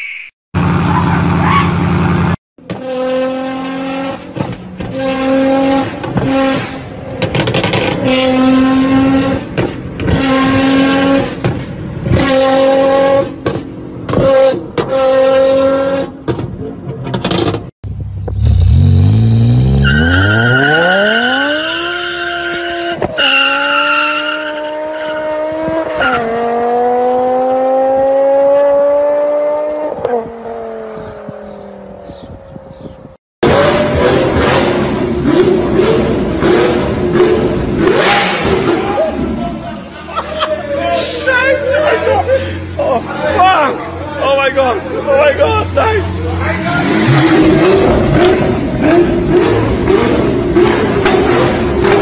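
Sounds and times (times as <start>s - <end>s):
sports car engine revving: 18.2s - 31.2s, 33.4s - 39.2s, 44.7s - 52.0s
car accelerating through gears: 18.4s - 31.7s, 46.6s - 52.0s.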